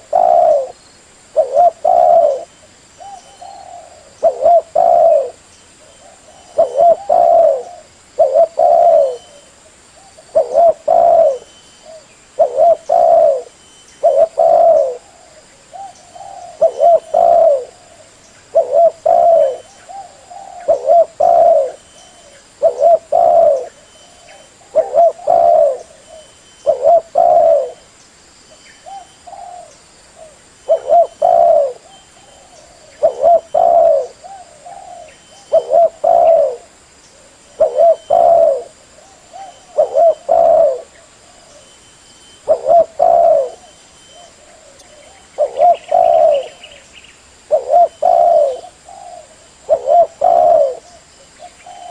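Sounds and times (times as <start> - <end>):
dove cooing: 0.0 - 27.9, 28.8 - 51.9.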